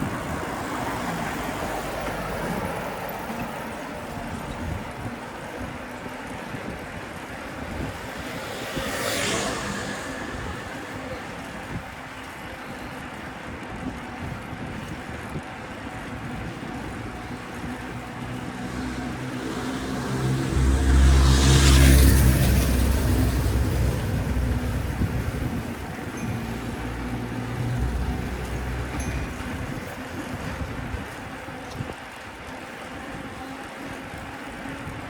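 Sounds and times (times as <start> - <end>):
heavy vehicle engine passing: 7.4 - 12.1, 17.5 - 29.4
vehicle swishing past: 7.6 - 11.9, 18.2 - 28.9.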